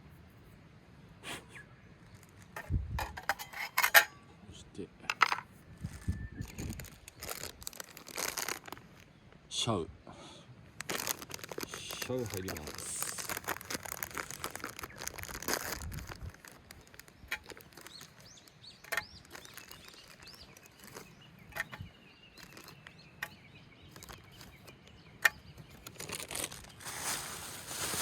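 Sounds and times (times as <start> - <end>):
small birds chirping: 5.6 - 28.0.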